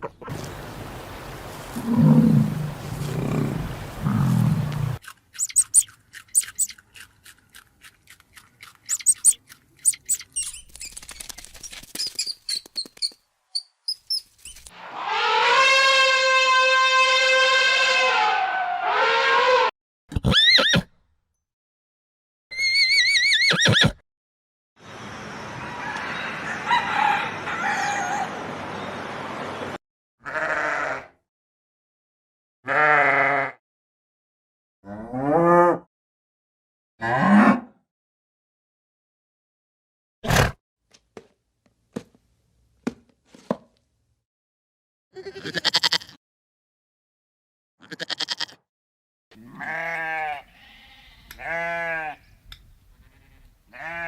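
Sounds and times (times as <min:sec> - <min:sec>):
animal chirps and squeaks: 0:05.3 - 0:07.4, 0:08.6 - 0:14.7
sheep bleating: 0:30.2 - 0:31.1, 0:32.7 - 0:33.6, 0:45.2 - 0:46.2, 0:47.8 - 0:48.6, 0:49.4 - 0:52.2, 0:53.1 - 0:54.0.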